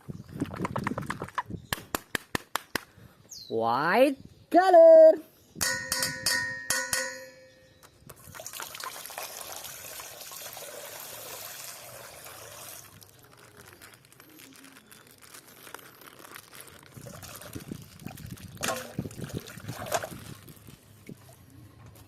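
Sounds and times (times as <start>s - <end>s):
water trickling: 17.0s - 21.3s.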